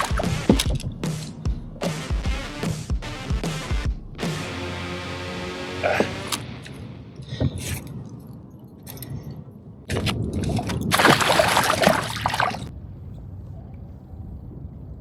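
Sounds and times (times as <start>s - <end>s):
water splashing and sloshing: 0.0s - 1.4s, 5.9s - 12.7s.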